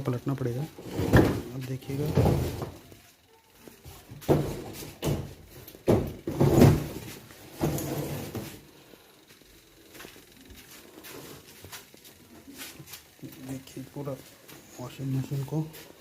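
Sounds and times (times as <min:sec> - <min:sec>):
washing machine cabinet knocks and scrapes: 0:02.1 - 0:02.8, 0:05.9 - 0:08.3.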